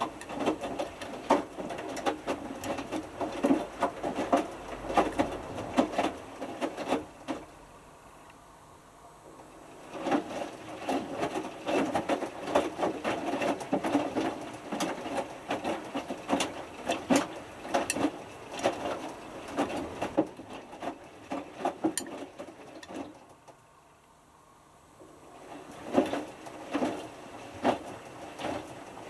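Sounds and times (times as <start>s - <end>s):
laundry swishing and flopping: 25.2s - 29.0s.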